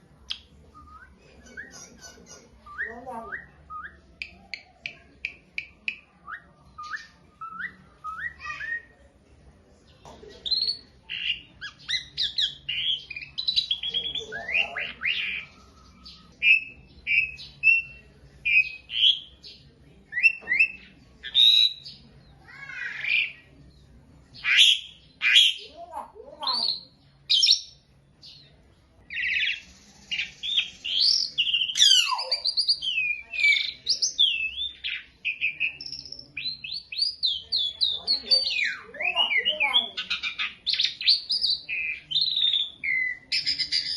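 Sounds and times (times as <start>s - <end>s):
bird singing whistles and squawks: 5.9s - 8.9s, 10.4s - 19.3s, 20.2s - 22.0s, 24.4s - 25.6s, 26.5s - 27.8s, 29.1s - 43.9s.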